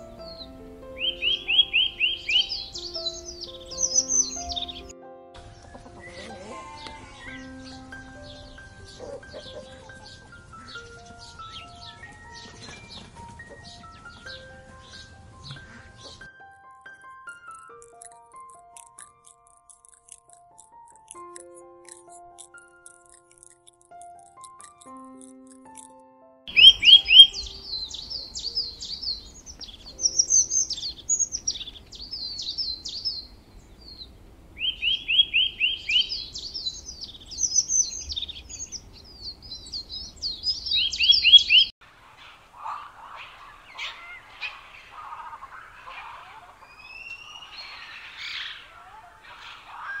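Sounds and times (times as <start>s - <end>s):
songbird chirping and whistling: 0.0s - 4.9s, 5.5s - 16.3s, 26.5s - 50.0s
faint low animal calls: 41.9s - 50.0s.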